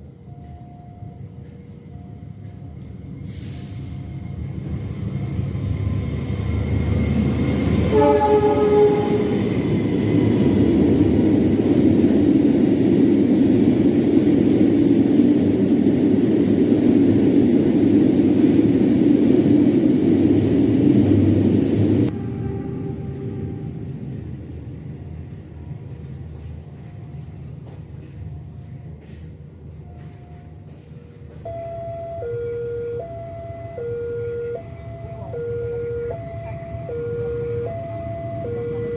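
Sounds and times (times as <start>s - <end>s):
train approaching: 0.0s - 38.9s
train wheels rumbling on rail: 0.0s - 38.9s
locomotive horn blast: 7.8s - 9.5s, 22.1s - 23.8s.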